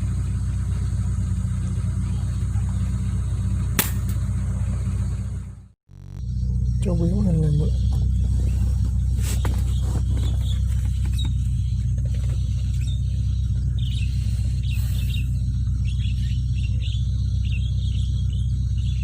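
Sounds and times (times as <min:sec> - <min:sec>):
vehicle engine humming: 0:00.0 - 0:19.0
sharp click: 0:03.8 - 0:04.2
bird chirping: 0:06.2 - 0:19.0.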